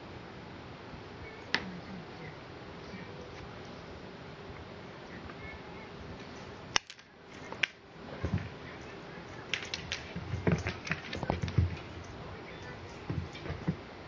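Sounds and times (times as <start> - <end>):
soft low thumps: 10.0 - 14.0.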